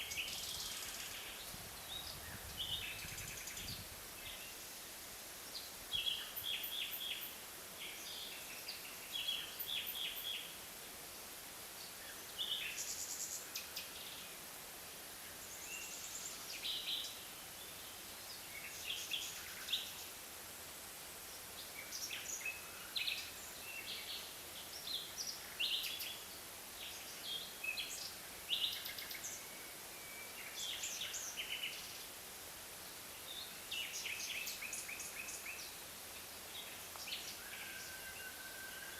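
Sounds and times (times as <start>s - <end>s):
faint steady hiss: 0.0s - 38.9s.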